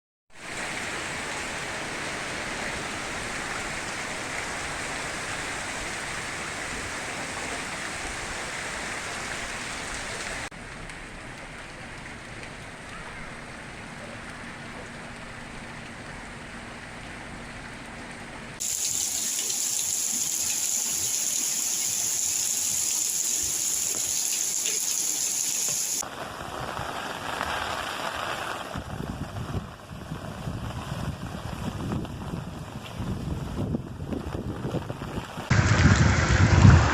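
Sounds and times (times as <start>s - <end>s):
running water: 0.4s - 26.0s
heavy rain: 0.4s - 36.9s.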